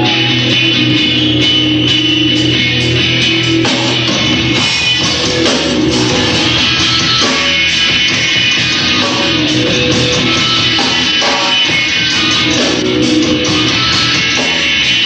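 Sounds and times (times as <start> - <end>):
distorted electric guitars: 0.0 - 15.0
drum kit: 0.0 - 15.0.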